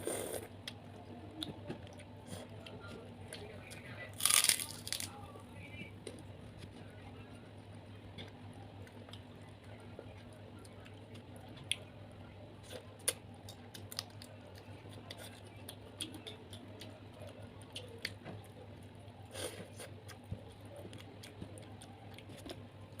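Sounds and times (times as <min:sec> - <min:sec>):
prawn shells cracking: 0:04.2 - 0:05.1.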